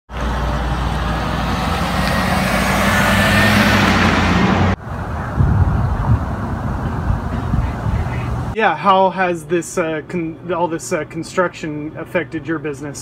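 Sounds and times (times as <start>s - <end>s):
heavy vehicle engine running: 0.1s - 8.6s
road and construction noise: 0.1s - 8.6s
street noise: 0.1s - 13.0s.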